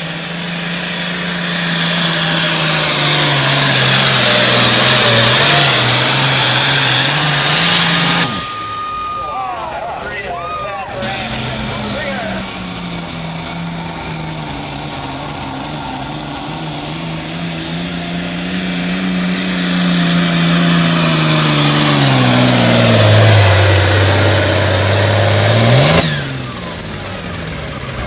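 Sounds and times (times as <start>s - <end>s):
diesel tractor engine under load: 0.0s - 28.0s.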